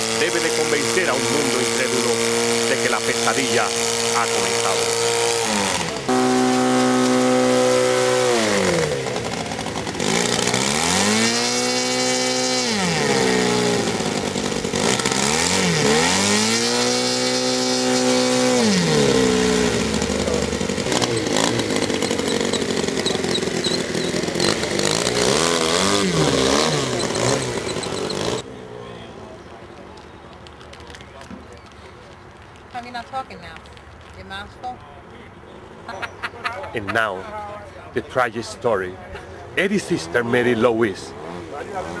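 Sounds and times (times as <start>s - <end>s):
engine revving: 0.0s - 28.5s, 39.6s - 42.0s.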